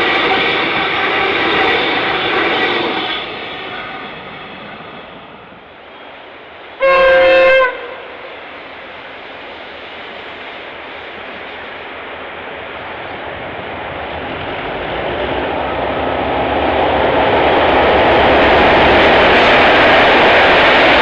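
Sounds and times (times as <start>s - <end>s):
passing train rushing: 0.0s - 21.0s
locomotive horn blast: 6.8s - 8.3s.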